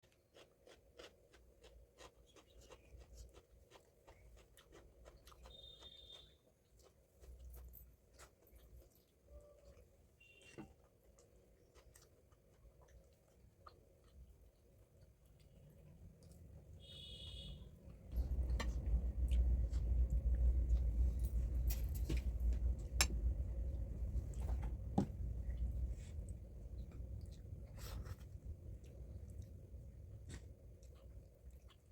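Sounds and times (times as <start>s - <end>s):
person chewing: 0.0s - 9.9s, 10.7s - 17.4s, 25.4s - 31.9s
steady low rumble: 18.1s - 31.6s.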